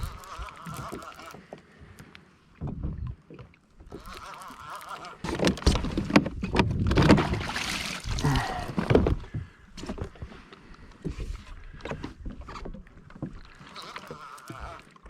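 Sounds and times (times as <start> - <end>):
water splashing: 0.0 - 1.8, 3.2 - 9.1, 12.9 - 15.0
knocks against a kayak: 5.3 - 7.6, 8.6 - 10.0.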